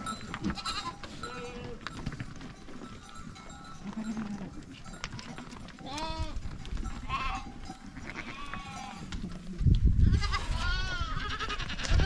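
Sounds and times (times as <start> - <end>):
goats bleating: 0.4 - 1.9, 3.8 - 6.4, 7.0 - 9.2, 10.0 - 12.0.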